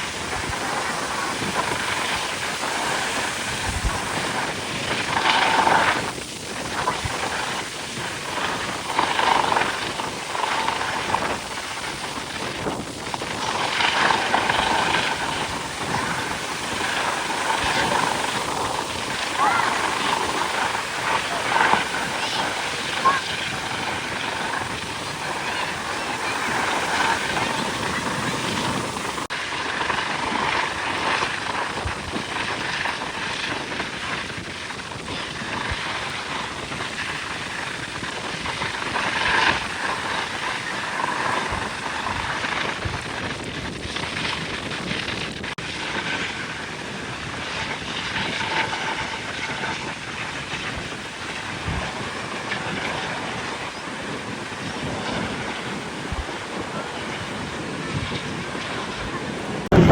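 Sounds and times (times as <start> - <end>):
aircraft engines droning: 0.0 - 29.9, 58.3 - 59.9.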